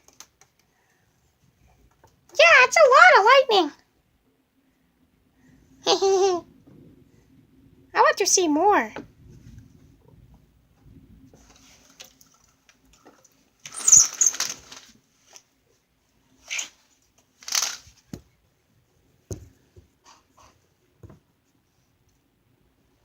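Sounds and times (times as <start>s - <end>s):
rustling bursts: 13.6s - 15.4s, 16.4s - 18.1s.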